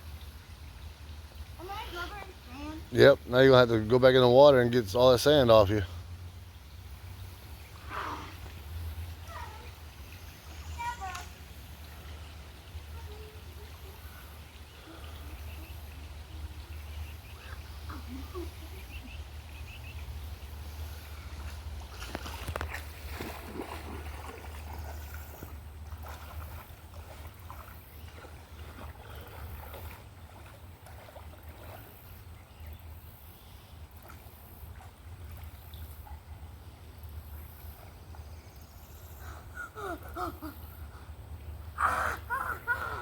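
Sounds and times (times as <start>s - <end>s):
running water: 0.0s - 43.0s
faint children's voices: 1.6s - 2.9s, 9.2s - 9.9s, 10.6s - 11.4s, 12.6s - 16.7s
short sharp splashes or knocks: 21.3s - 31.8s.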